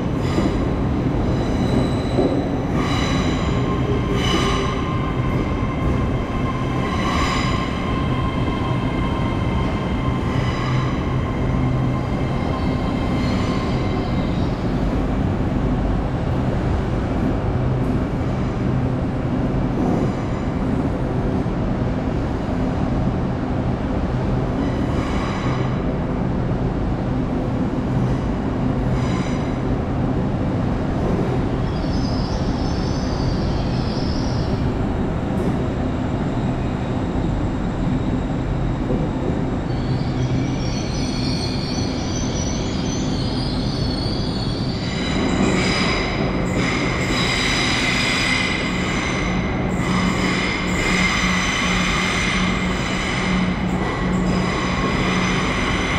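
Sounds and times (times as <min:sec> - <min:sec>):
second train passing: 0:00.0 - 0:55.9
train traction hum: 0:00.0 - 0:55.9
train wheels squealing: 0:00.2 - 0:14.7, 0:28.9 - 0:29.6, 0:31.6 - 0:34.8, 0:35.4 - 0:55.9.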